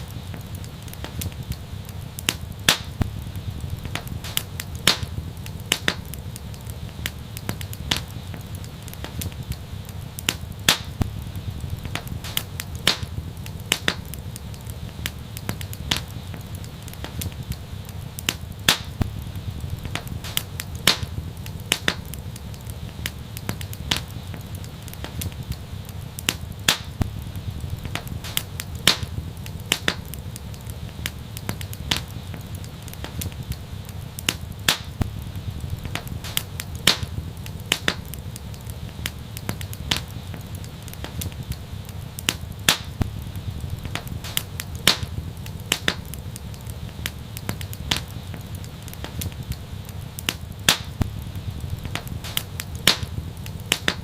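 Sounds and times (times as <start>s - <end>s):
low rumble of flames: 0.0s - 54.0s
wood fire pops and snaps: 0.0s - 54.0s.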